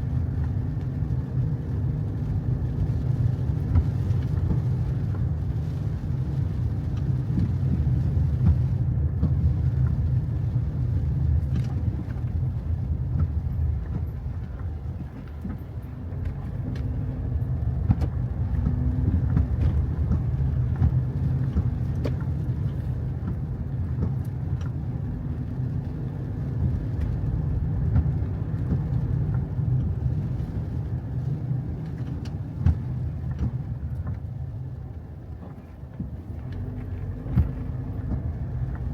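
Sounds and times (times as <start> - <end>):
car rumbling on the move: 0.0 - 38.9.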